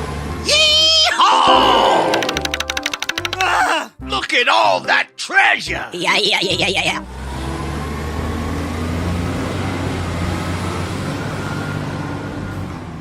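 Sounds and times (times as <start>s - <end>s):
vehicle engine humming: 6.4s - 12.9s
road noise: 6.4s - 13.0s.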